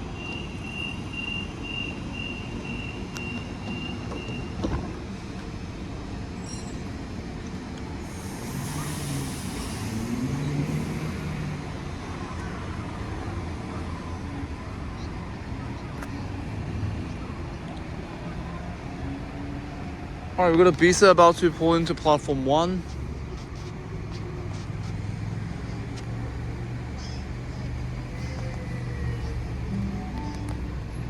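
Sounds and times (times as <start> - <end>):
steady rumble: 7.9 - 12.8
air hiss: 8.0 - 11.8.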